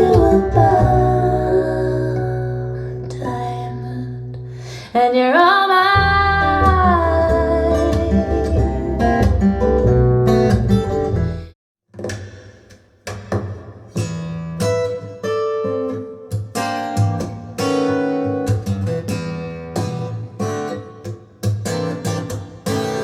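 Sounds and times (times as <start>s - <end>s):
acoustic guitar and bass music: 0.0s - 4.9s, 5.7s - 11.6s, 13.3s - 23.0s
strummed acoustic guitar chords: 6.0s - 11.5s, 13.4s - 23.0s.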